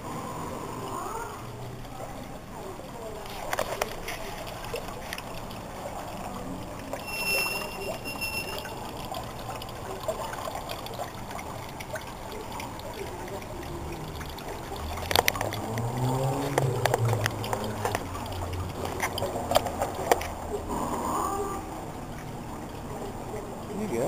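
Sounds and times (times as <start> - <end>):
trickle of running water: 0.0 - 24.0
bird whistle: 7.0 - 8.7.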